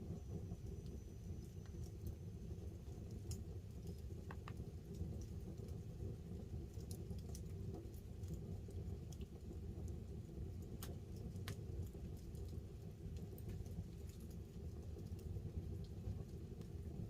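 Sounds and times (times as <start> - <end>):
campfire crackling and popping: 0.0 - 17.0
rain pattering on a tarp: 3.0 - 17.0.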